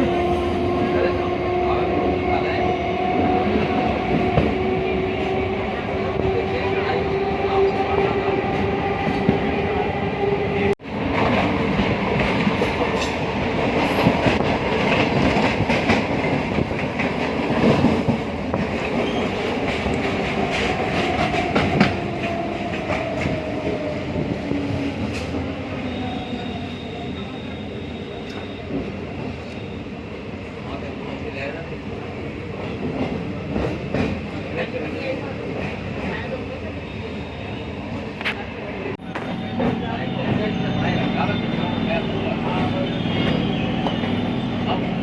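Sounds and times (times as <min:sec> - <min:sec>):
train rumble: 0:00.0 - 0:29.6
faint high wheel squeal: 0:25.9 - 0:28.8, 0:29.4 - 0:30.0.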